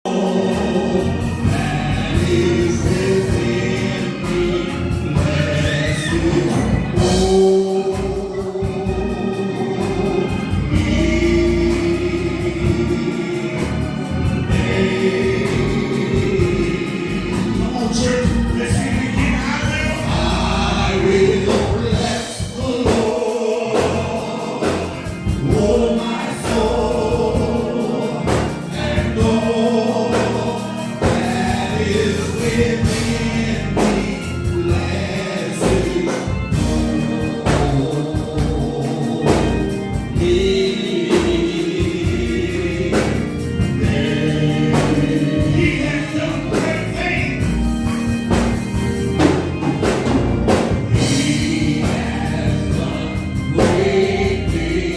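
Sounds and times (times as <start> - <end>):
gospel choir singing: 0.0 - 54.9
bass line: 0.1 - 54.9.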